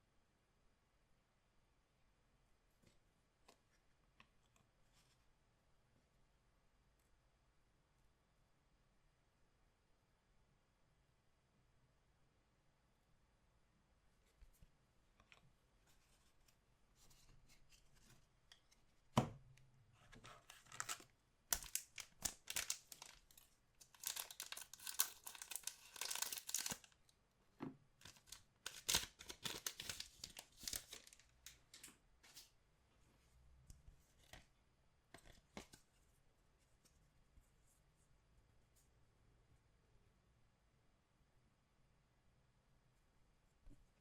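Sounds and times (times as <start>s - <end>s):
wrapper tearing and crinkling: 20.6s - 27.0s, 28.0s - 31.3s.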